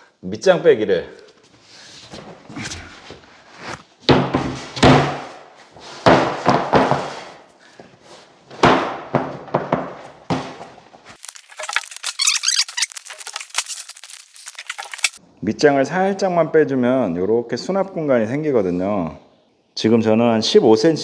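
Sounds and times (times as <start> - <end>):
heavy thuds of boards set down: 4.1 - 5.3, 6.0 - 7.3, 8.6 - 10.8
board scraping and squeaking: 11.2 - 15.2.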